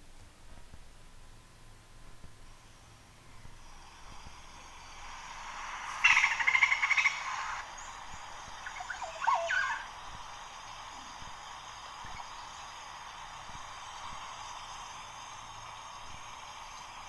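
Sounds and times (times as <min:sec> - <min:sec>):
faint steady hiss: 0:00.0 - 0:17.0
short sweeping bird notes: 0:04.6 - 0:10.0
bird chattering trill: 0:05.4 - 0:14.9.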